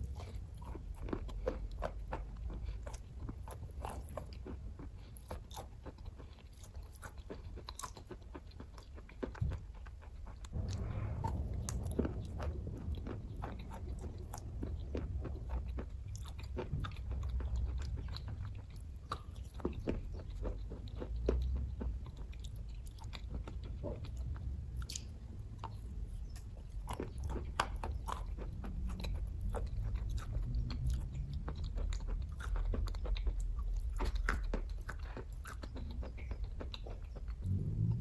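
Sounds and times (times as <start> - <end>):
person chewing: 0.0 - 38.0
low rumble: 9.2 - 38.0.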